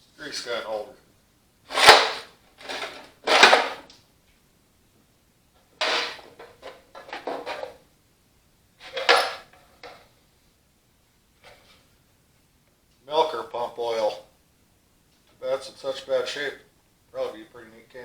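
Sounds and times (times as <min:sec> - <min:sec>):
metal oil can rattling: 0:01.7 - 0:03.8, 0:05.8 - 0:07.8.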